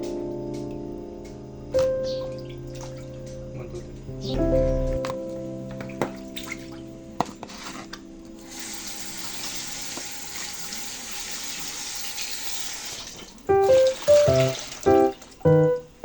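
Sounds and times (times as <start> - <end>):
tap water running into sink: 8.4 - 15.4.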